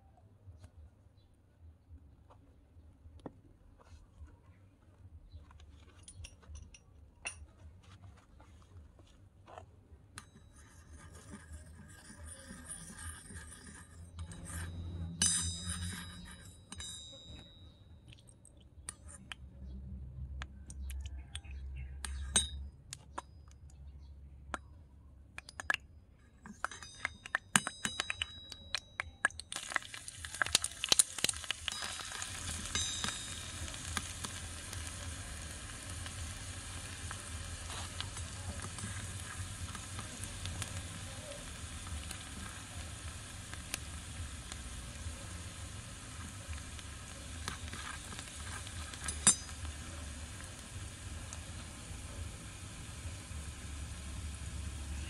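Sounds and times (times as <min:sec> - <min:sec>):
metal spoon scraping wok: 0:10.2 - 0:17.5, 0:29.7 - 0:44.9, 0:45.5 - 0:51.7
garlic sizzling in oil: 0:29.5 - 0:55.0.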